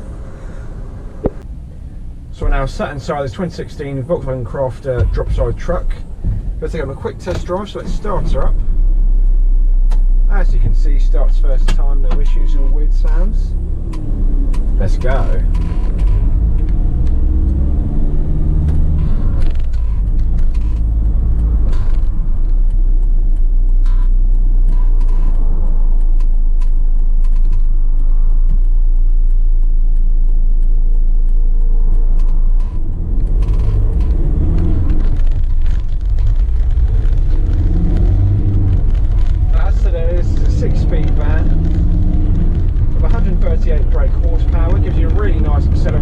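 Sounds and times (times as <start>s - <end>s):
low road rumble: 0.0s - 46.0s
diesel engine accelerating: 2.4s - 46.0s.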